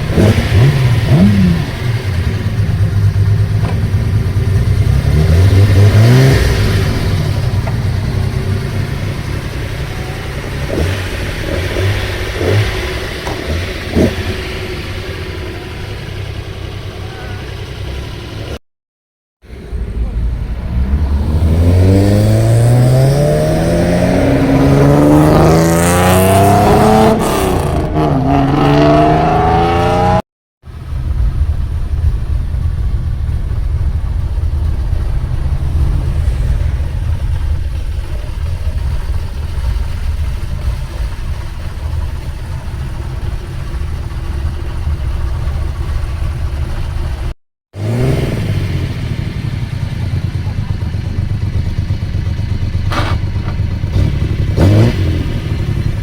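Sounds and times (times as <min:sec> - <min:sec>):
loud car exhaust revving: 0:00.0 - 0:16.3, 0:19.6 - 0:41.8, 0:42.7 - 0:51.0, 0:52.2 - 0:56.0
low exhaust rumble: 0:30.6 - 0:47.4.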